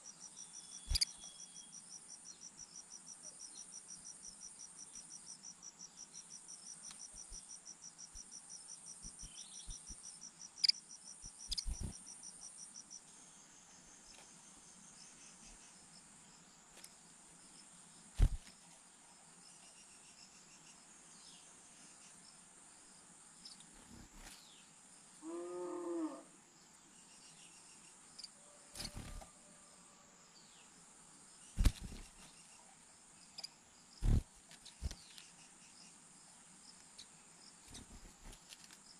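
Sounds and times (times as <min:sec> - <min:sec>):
insect trilling: 0:00.5 - 0:01.8, 0:09.0 - 0:12.4, 0:31.6 - 0:32.2, 0:33.4 - 0:35.1.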